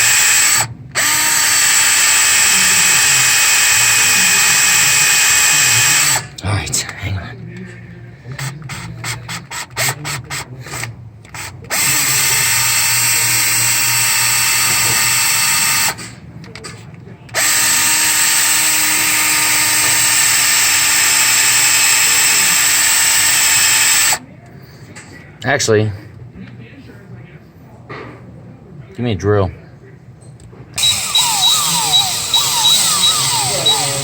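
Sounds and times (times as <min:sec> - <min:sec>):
power drill boring into bolt: 0:00.0 - 0:06.2, 0:11.7 - 0:16.0, 0:17.4 - 0:24.2, 0:30.8 - 0:34.0.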